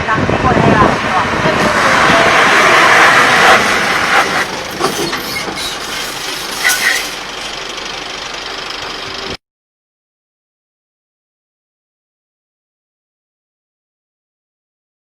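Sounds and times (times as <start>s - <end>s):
truck brake air rushing: 1.6s - 9.4s
short squeals and rattles: 2.7s - 9.4s.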